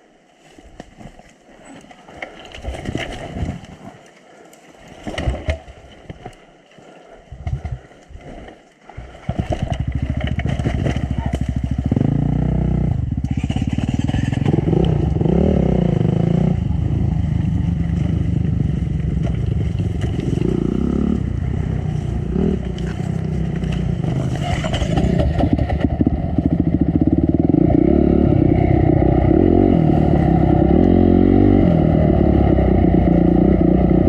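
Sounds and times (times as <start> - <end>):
knocks and clatter: 9.3 - 11.6
dirt bike engine revving: 9.3 - 34.0.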